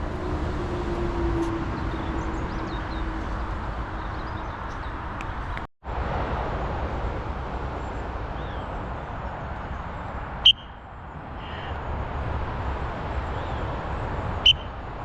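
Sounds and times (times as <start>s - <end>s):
rushing wind: 0.0s - 15.0s.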